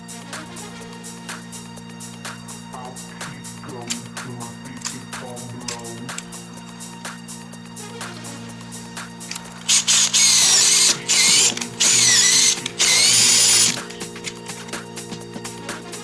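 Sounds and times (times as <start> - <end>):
background music: 0.0 - 16.0
power drill bursts: 9.4 - 14.4.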